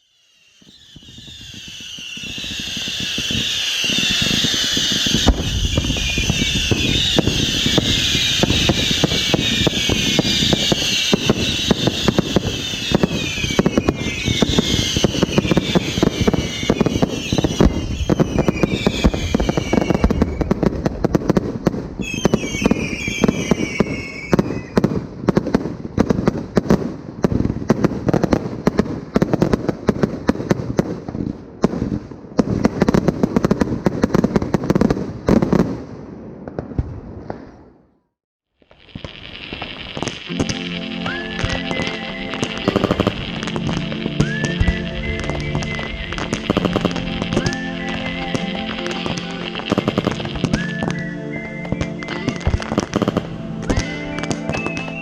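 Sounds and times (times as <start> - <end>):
fireworks whistles falling in pitch: 0.0 - 25.0, 38.6 - 55.0
fireworks crackling and popping: 0.0 - 55.0.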